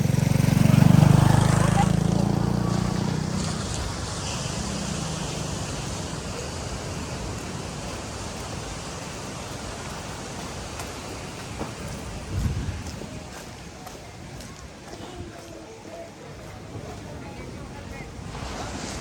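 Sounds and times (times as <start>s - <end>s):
passing motor humming: 0.0s - 7.3s
surf: 0.0s - 19.0s
rain hissing: 0.3s - 13.2s, 18.0s - 19.0s.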